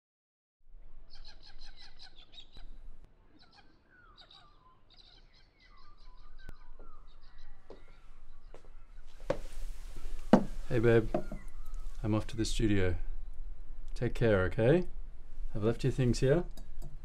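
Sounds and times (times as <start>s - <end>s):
birds chirping and singing: 1.0s - 13.5s.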